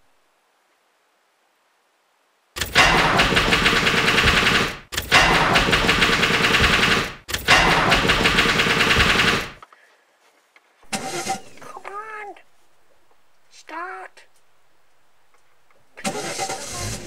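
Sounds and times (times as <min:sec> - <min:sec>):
car starter motor cranking: 0:16.0 - 0:17.0.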